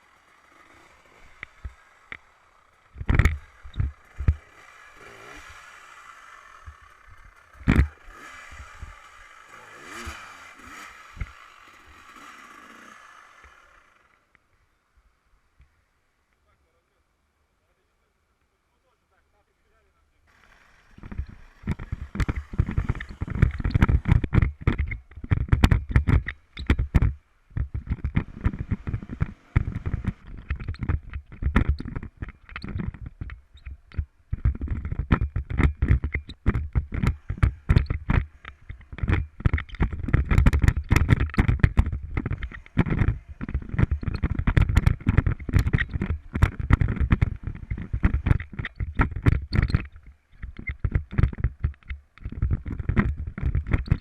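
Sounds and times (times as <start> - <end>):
camera rig knocking and rumbling: 2.9 - 5.2, 6.5 - 12.3, 20.9 - 54.0.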